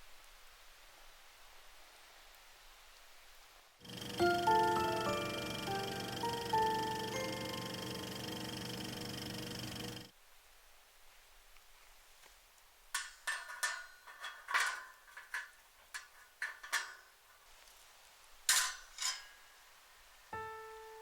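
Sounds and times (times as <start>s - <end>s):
metal cookware clinking: 13.0s - 17.2s, 18.5s - 19.5s.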